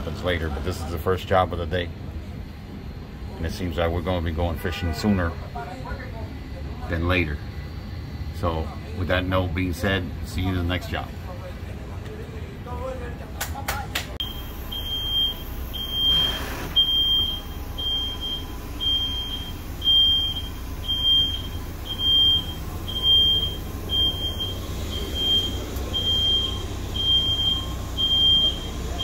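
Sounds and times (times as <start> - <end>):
electronic warning beeps: 14.2 - 29.0.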